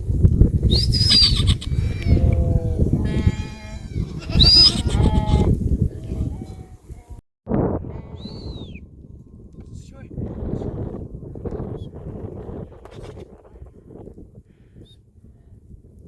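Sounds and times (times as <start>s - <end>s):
livestock calling: 0.8s - 7.1s, 7.8s - 11.4s
loud low rumble: 1.8s - 6.4s, 7.5s - 13.8s.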